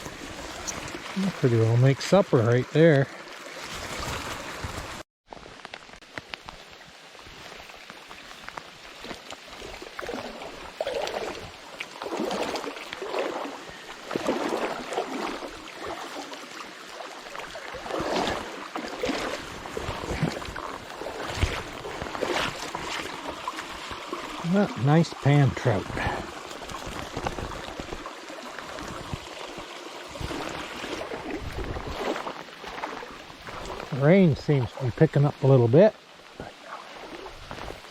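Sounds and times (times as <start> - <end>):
brook water gurgling: 0.0 - 37.9
water splashing: 0.0 - 37.9.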